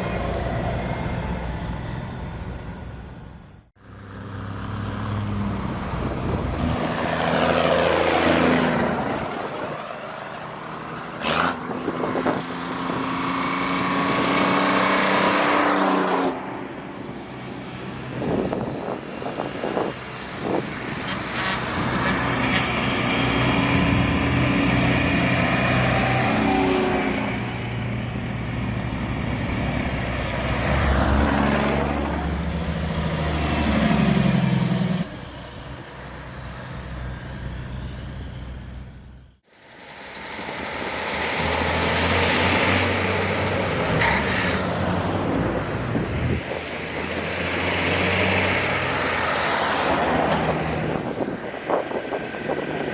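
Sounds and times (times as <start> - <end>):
truck engines passing: 0.0 - 52.9.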